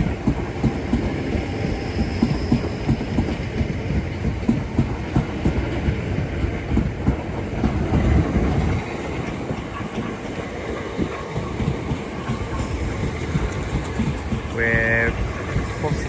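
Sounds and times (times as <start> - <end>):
train wheels clattering over rails: 0.0 - 16.0.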